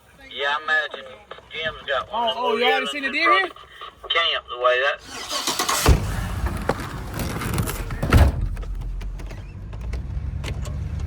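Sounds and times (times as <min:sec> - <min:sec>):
pickup engine and road noise: 0:04.2 - 0:11.0
truck door thunk: 0:05.5 - 0:09.6.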